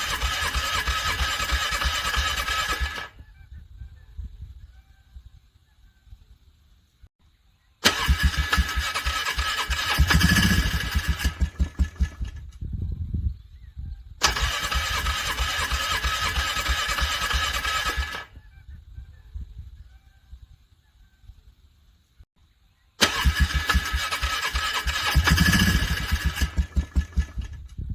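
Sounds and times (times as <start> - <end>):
engine cranking with starter: 0.0 - 3.2, 7.8 - 12.5, 14.2 - 18.3, 23.0 - 27.8.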